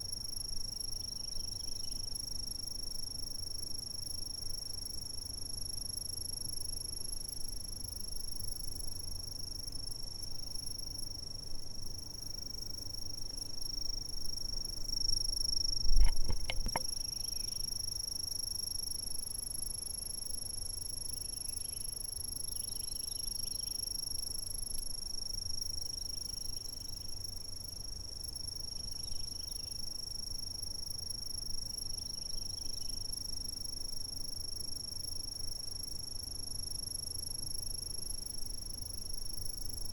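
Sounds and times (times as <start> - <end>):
insects trilling: 0.1 - 2.3, 12.1 - 36.0
clicks: 15.9 - 16.9.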